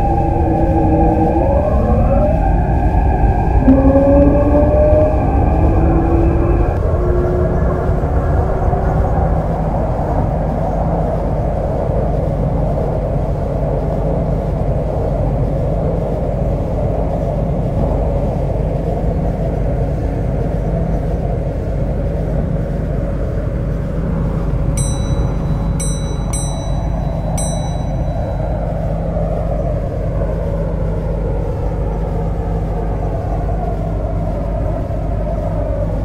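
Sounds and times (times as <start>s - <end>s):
train rumble with motor whine: 0.0s - 36.0s.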